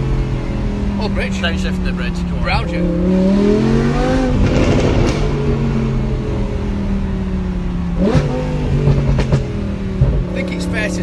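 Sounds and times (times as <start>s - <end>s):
car engine revving: 0.0s - 11.0s
exhaust crackling and popping: 4.2s - 6.6s, 7.9s - 11.0s.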